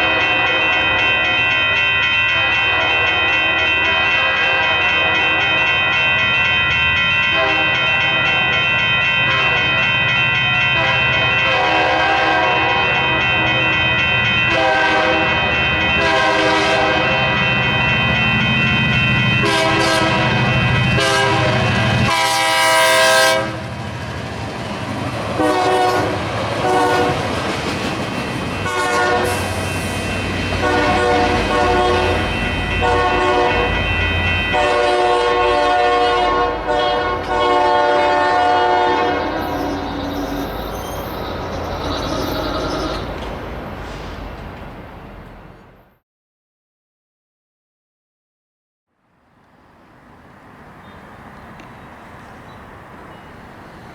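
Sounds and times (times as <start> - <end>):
locomotive air horn blasts: 2.2 - 6.1, 7.2 - 8.6, 9.2 - 10.0, 10.6 - 23.8, 25.4 - 27.3, 28.6 - 40.6
train wheels clattering: 23.9 - 32.4.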